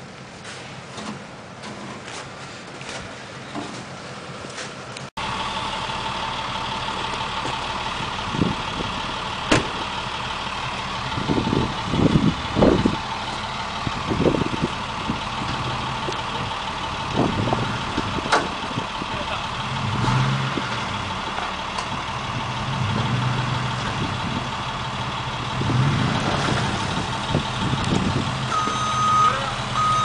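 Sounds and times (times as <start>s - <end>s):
vehicle engine idling: 0.0s - 30.0s.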